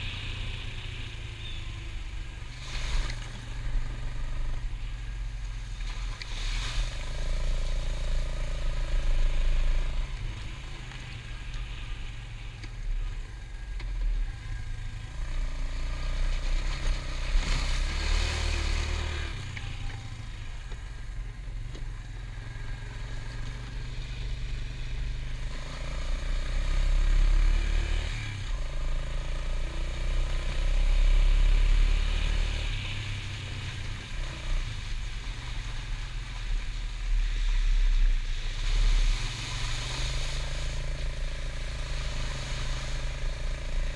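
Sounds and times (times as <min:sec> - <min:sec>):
atv engine running: 0:07.0 - 0:36.4, 0:38.6 - 0:43.9.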